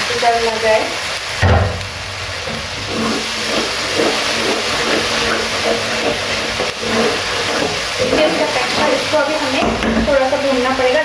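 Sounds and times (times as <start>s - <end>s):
masala sizzling in a frying pan: 0.0s - 11.0s
wooden spatula stirring: 2.4s - 11.0s.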